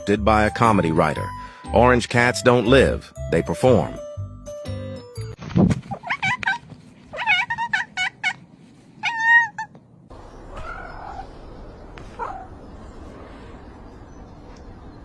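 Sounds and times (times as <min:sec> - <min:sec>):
cat chirping and meowing: 0:05.9 - 0:11.3.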